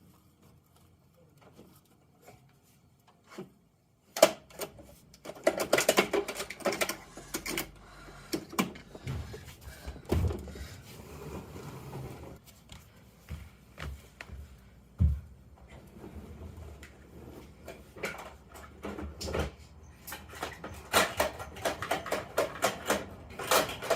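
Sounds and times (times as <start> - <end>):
plastic toy truck clicking and rattling: 4.1 - 8.9, 20.1 - 23.9.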